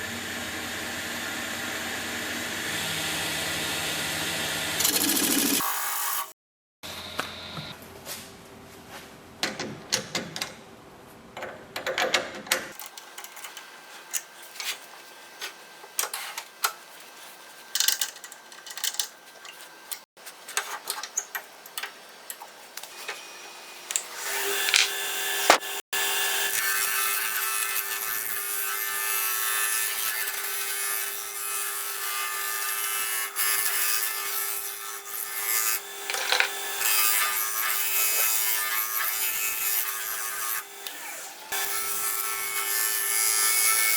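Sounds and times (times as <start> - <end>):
turning tool scraping wood: 23.9 - 25.8, 35.4 - 40.1.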